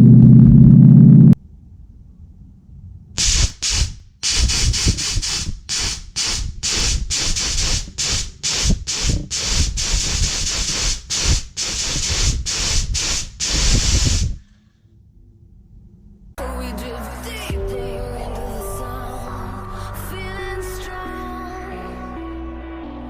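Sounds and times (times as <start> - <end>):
solenoid hissing bursts: 3.2 - 14.4.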